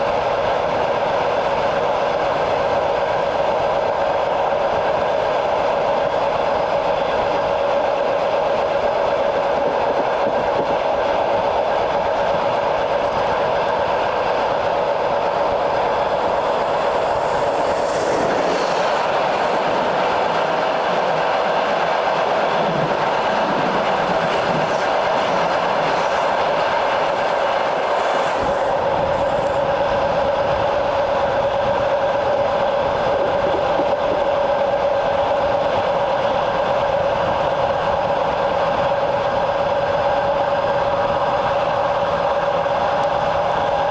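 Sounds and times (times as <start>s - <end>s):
train wheels clattering over rails: 3.2s - 43.9s
steady whine: 9.6s - 34.8s.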